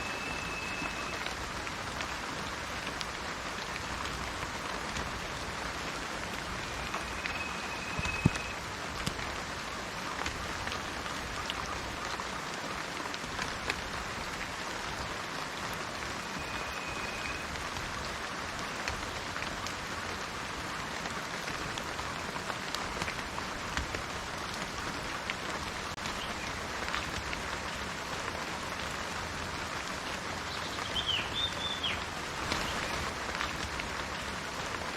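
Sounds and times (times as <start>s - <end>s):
rain on plants: 0.0s - 34.9s
water drips: 0.1s - 9.4s.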